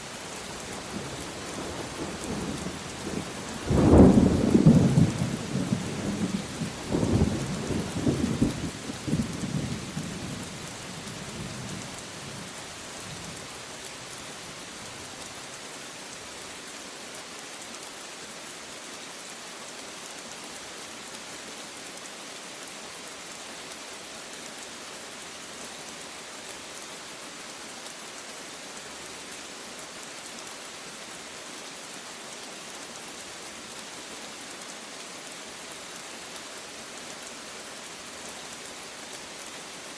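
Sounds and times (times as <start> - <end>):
steady rain falling: 0.0 - 39.9
thunder rumbling: 3.7 - 7.4.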